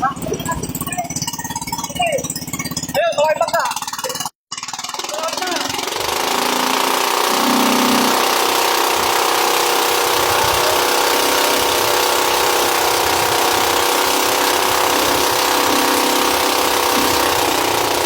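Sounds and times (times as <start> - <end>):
boat engine running: 0.0 - 18.0
water rushing: 6.3 - 18.0
wind: 8.8 - 18.0.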